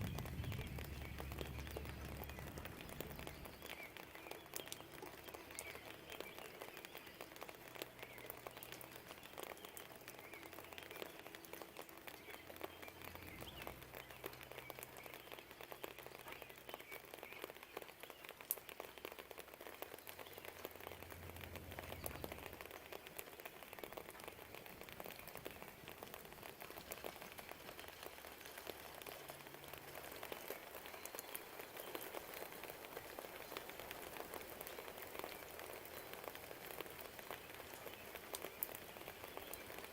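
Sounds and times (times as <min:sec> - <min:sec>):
low distant rumble: 0:00.0 - 0:03.9
drips ticking: 0:00.0 - 0:39.9
light rain pattering: 0:00.0 - 0:39.9.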